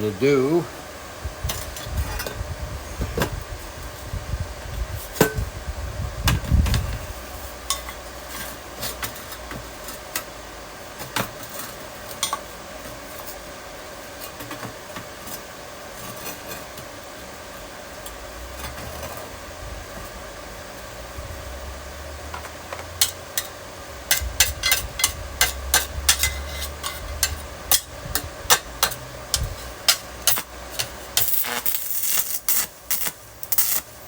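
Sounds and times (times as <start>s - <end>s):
welder cooling fan humming: 0.0s - 34.0s.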